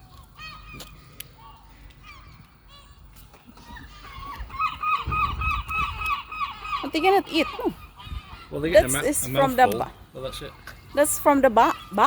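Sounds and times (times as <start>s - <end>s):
gulls calling: 0.0s - 12.0s.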